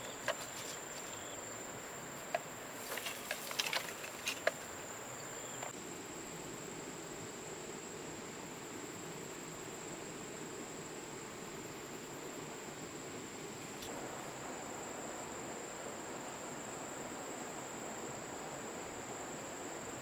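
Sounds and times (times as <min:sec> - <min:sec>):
insects shrilling: 0:00.0 - 0:05.7.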